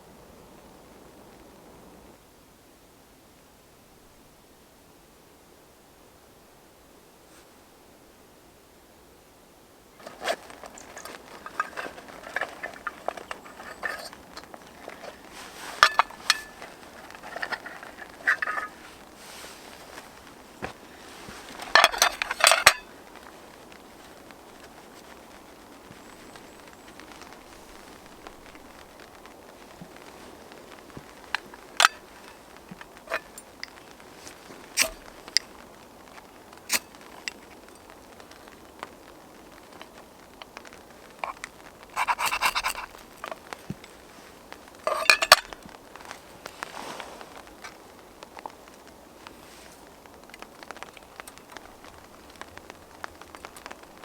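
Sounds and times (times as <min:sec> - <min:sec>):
rain hiss: 0:00.0 - 0:54.0
metal cookware clinking: 0:10.0 - 0:18.8, 0:21.6 - 0:22.9, 0:34.8 - 0:35.0, 0:44.9 - 0:45.6
sharp rain taps: 0:10.0 - 0:54.0
short metallic rings: 0:14.9 - 0:19.0, 0:21.6 - 0:22.9, 0:44.9 - 0:45.6.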